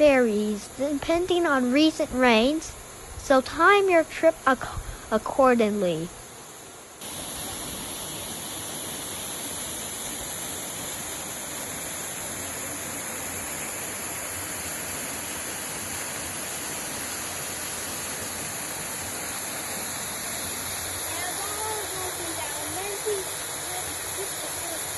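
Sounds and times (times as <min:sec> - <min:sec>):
waterfall rushing: 0:07.0 - 0:24.9.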